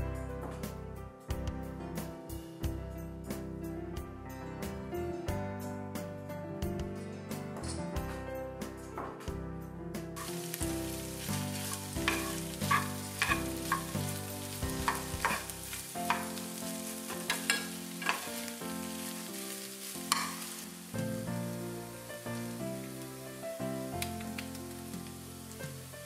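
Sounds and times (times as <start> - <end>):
mushrooms sizzling in a frying pan: 10.2 - 26.0
metal spoon scraping a pan: 11.2 - 16.4, 17.0 - 19.2, 20.1 - 20.6.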